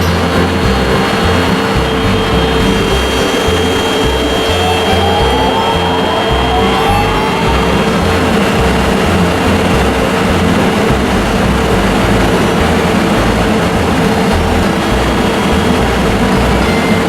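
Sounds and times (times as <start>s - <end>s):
constant hum: 0.0s - 17.0s
electric train equipment roaring: 0.0s - 17.0s.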